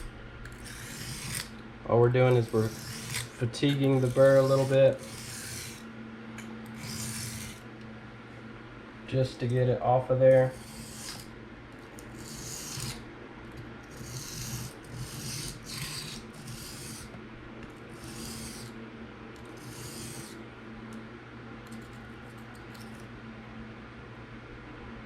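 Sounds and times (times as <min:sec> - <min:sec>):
knife scraping on sharpening plate: 0:00.5 - 0:01.5, 0:02.4 - 0:05.8, 0:06.7 - 0:07.6, 0:10.5 - 0:11.3, 0:12.2 - 0:13.0, 0:13.9 - 0:17.1, 0:19.6 - 0:20.4.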